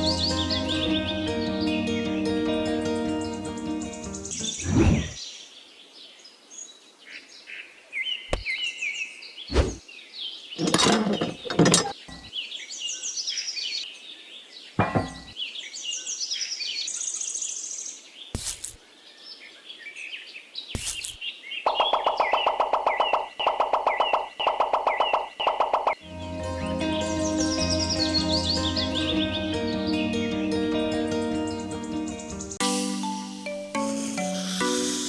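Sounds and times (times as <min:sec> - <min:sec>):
music: 0:00.0 - 0:04.5, 0:26.0 - 0:35.0
birds chirping: 0:09.4 - 0:13.5, 0:14.6 - 0:17.2, 0:21.2 - 0:26.0
sharp knocks: 0:14.8 - 0:15.4.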